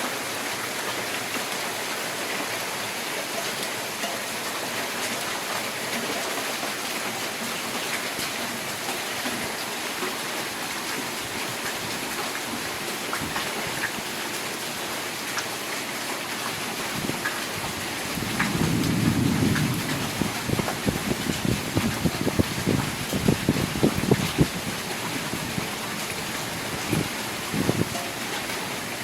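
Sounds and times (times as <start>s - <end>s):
rain falling: 0.0s - 29.0s
sharp taps of raindrops: 5.9s - 14.0s, 15.3s - 15.6s, 16.4s - 28.7s
low rumble of thunder: 17.0s - 24.7s.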